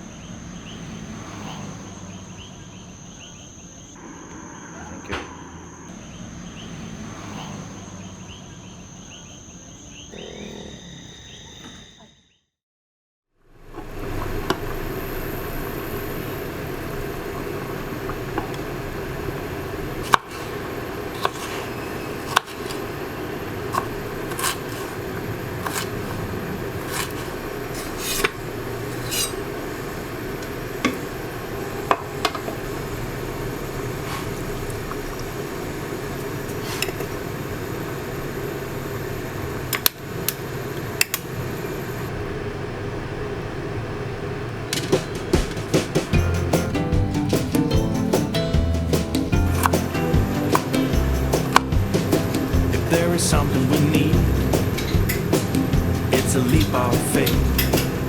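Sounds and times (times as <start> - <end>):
steady background hum: 0.0 - 10.4, 13.4 - 58.0
dishes and cutlery clinking: 56.2 - 58.0.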